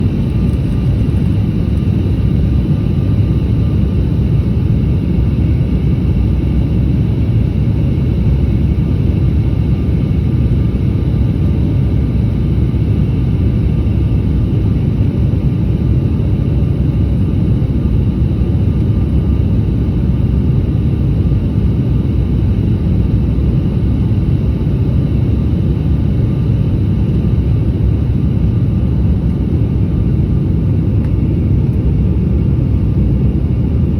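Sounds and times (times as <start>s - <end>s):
airliner engine rumble: 0.0s - 33.9s.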